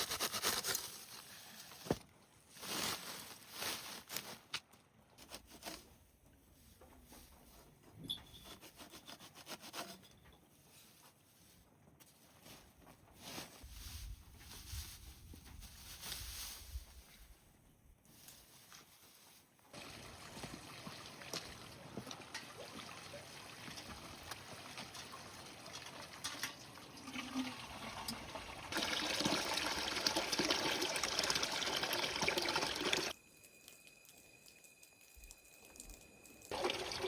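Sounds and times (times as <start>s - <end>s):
water trickling and pouring: 19.7s - 37.0s.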